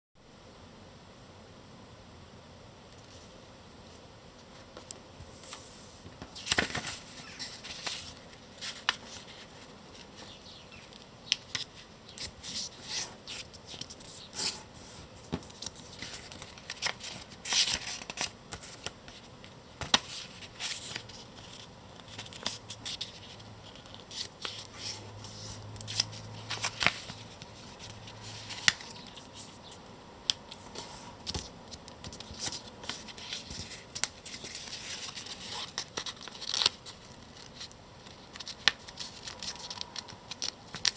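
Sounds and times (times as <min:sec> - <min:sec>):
paper rustling and crackling: 0:04.5 - 0:29.7, 0:30.5 - 0:40.9.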